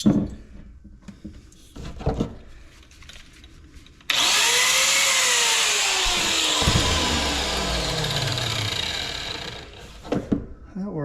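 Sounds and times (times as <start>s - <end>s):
power tool whining: 4.1s - 10.2s.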